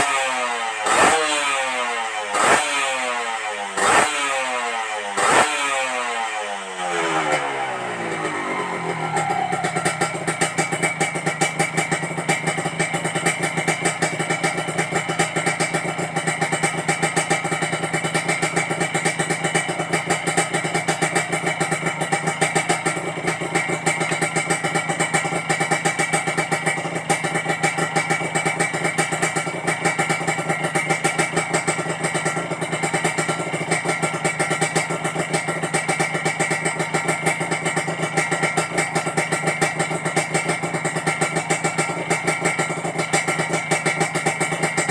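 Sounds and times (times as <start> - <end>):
motorcycle engine idling: 0.0 - 44.9.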